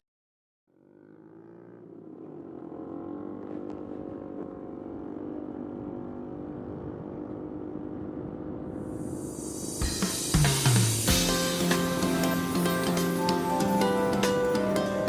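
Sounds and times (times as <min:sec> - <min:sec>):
small motorcycle engine running: 0:00.7 - 0:09.4.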